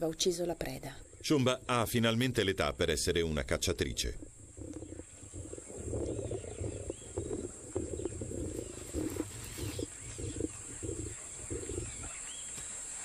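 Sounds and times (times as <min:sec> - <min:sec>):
high insect trill: 0:03.8 - 0:13.0
lions growling while feeding: 0:04.4 - 0:13.0.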